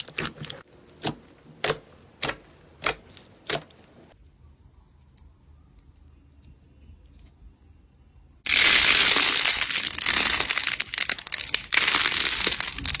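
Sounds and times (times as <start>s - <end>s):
slime crackling and crinkling: 0.0s - 1.5s, 8.5s - 13.0s.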